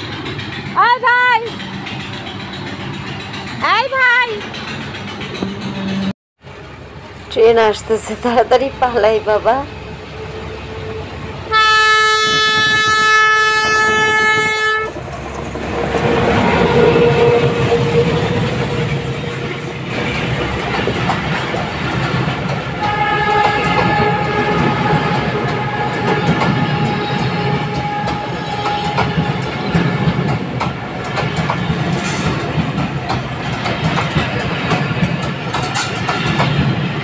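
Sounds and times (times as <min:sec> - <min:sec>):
train wheels clacking on rails: 0:00.0 - 0:06.1, 0:12.2 - 0:37.0
train horn blast: 0:10.1 - 0:15.0, 0:22.8 - 0:30.3
faint steady horn tone: 0:22.8 - 0:29.5.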